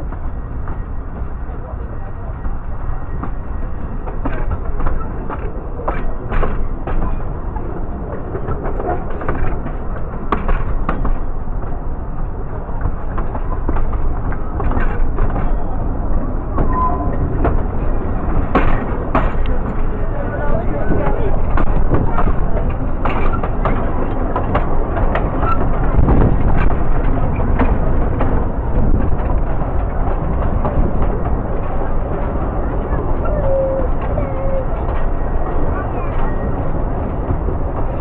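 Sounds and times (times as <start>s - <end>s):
train wheels rumbling on track: 0.0s - 38.0s
wheels clicking over rail joints: 2.2s - 38.0s.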